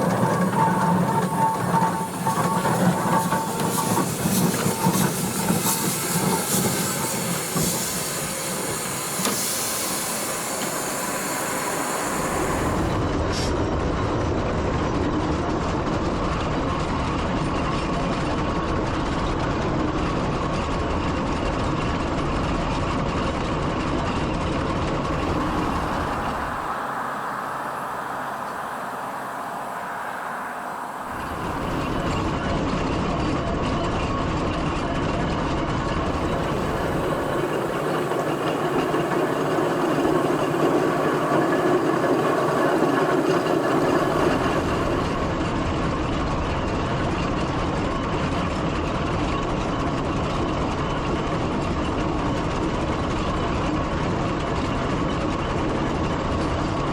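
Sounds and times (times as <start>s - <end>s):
steam hiss: 0.0s - 13.5s, 25.0s - 32.4s, 36.0s - 45.4s
steam traction engine moving: 0.0s - 13.5s, 24.9s - 32.5s, 36.0s - 45.5s.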